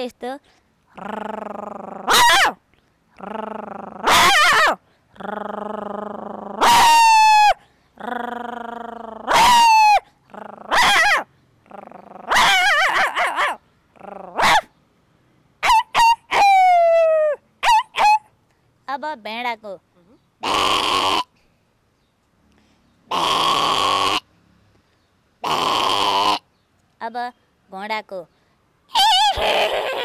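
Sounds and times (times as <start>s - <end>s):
woman imitating puppy yelps: 0.9s - 2.6s, 3.2s - 11.3s, 11.9s - 14.7s, 15.6s - 18.3s, 28.9s - 30.0s.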